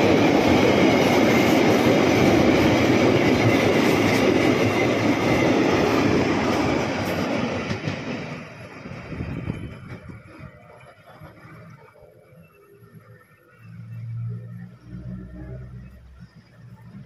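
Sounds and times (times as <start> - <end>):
freight train wheels rumbling: 0.0 - 13.5.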